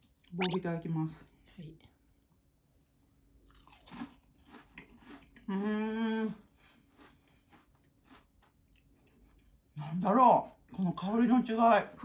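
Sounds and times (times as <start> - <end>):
crunchy chewing: 3.5 - 5.5, 6.6 - 9.6.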